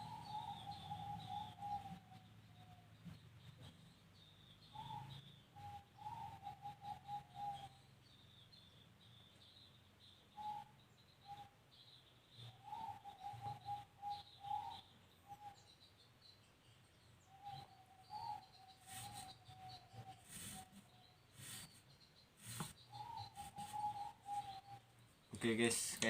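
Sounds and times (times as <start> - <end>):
faint bird calling: 4.6 - 7.9, 12.4 - 16.0, 17.2 - 26.0.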